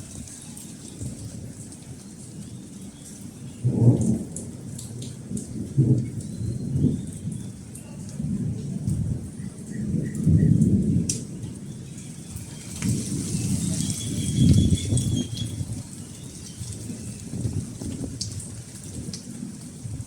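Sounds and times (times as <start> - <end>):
steady rain: 0.0 - 20.0
thunder rumbling: 3.6 - 20.0.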